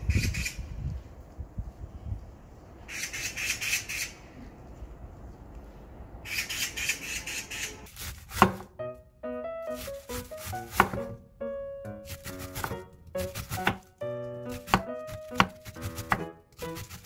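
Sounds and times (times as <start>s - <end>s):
bird squawking: 2.9s - 4.2s, 6.3s - 7.9s
knife chopping on wooden board: 8.0s - 8.8s, 9.8s - 11.2s, 12.1s - 13.9s, 14.5s - 17.0s
background music: 8.3s - 17.0s.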